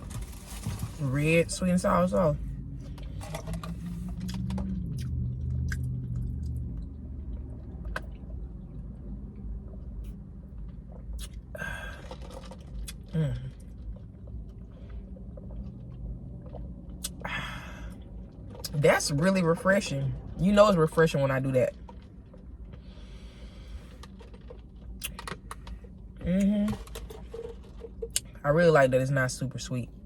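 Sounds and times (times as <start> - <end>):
steady low hum: 0.0 - 30.0
person chewing food: 2.8 - 18.7.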